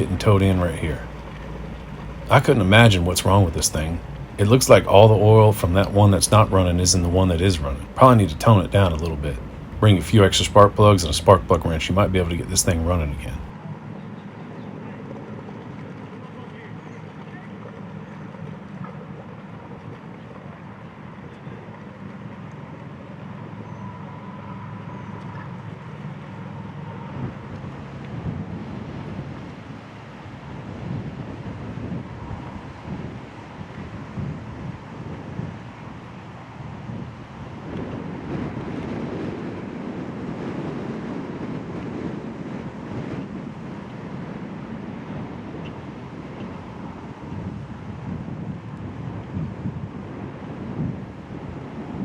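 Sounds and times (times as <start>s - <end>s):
wind buffeting microphone: 0.0s - 13.6s, 23.2s - 52.0s
watercraft engine running: 0.0s - 52.0s.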